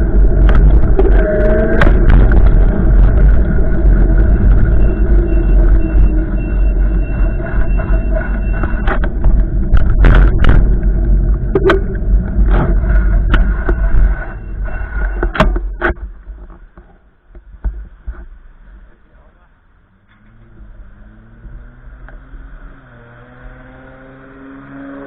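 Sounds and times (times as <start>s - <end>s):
wind gusts buffeting microphone: 0.0s - 15.9s
steady hum: 0.0s - 19.1s
sharp knocks: 11.5s - 13.8s.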